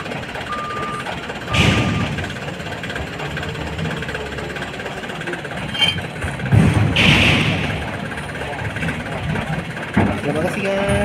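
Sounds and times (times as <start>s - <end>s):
truck reversing alarm beeping: 0.0s - 6.5s
diesel engine running: 0.0s - 11.0s.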